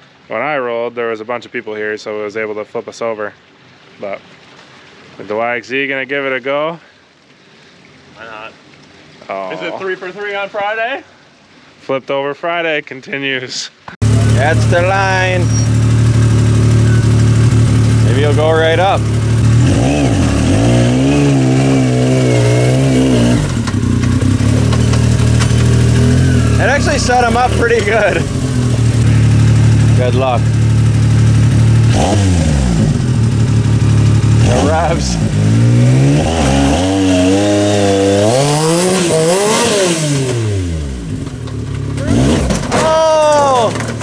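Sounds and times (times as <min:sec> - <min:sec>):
engine idling: 0:14.0 - 0:20.6, 0:21.9 - 0:35.4
engine revving: 0:14.0 - 0:43.9.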